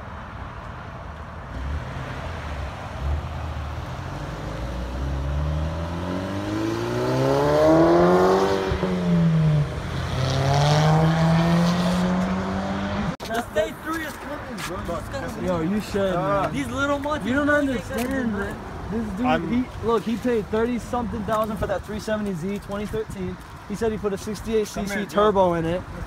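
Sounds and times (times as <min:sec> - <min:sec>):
car engine accelerating hard: 0:01.5 - 0:13.2.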